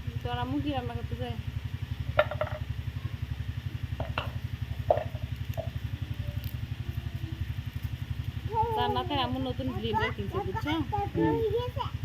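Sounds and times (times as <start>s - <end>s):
low pulsing hum: 0.0s - 12.0s.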